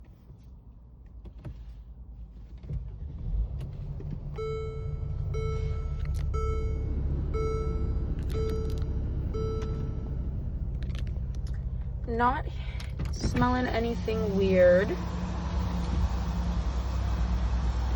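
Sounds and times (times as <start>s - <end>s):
car engine cranking and starting: 0.9s - 17.9s
car engine idling: 3.6s - 17.9s
car warning chime beeps: 4.4s - 10.4s.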